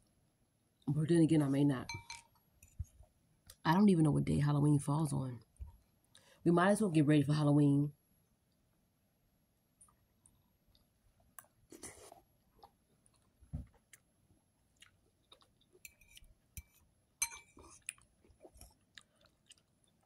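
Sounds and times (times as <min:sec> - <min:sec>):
person chewing greens: 0:09.8 - 0:20.0.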